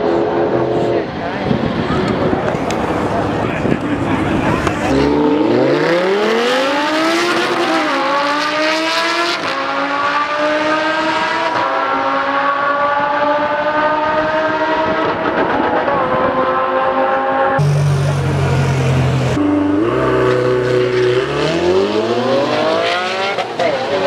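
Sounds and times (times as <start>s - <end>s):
car engines accelerating with upshifts: 0.0s - 24.0s.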